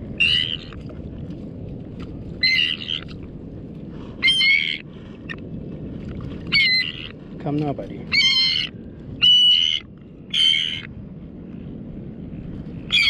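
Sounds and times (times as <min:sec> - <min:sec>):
bird calling in distress: 0:00.2 - 0:00.8, 0:02.4 - 0:03.1, 0:04.2 - 0:04.8, 0:06.5 - 0:07.2, 0:08.1 - 0:10.9.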